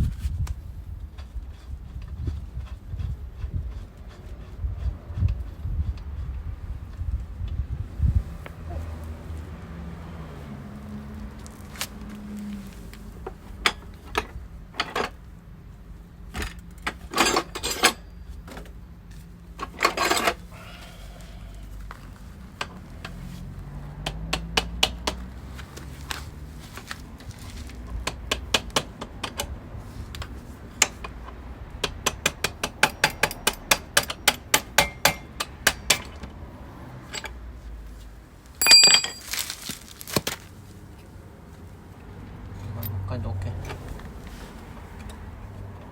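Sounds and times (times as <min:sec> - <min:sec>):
ringing metal clank: 0:38.6 - 0:39.4
metal hand tools clinking: 0:38.6 - 0:40.0.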